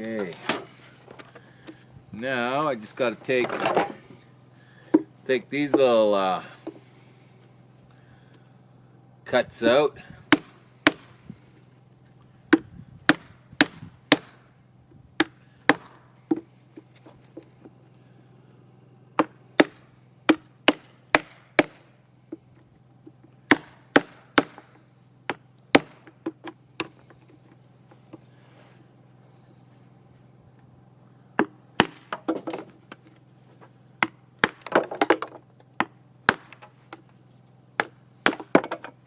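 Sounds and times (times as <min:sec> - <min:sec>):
hammer and chisel on wood: 0:23.0 - 0:27.2.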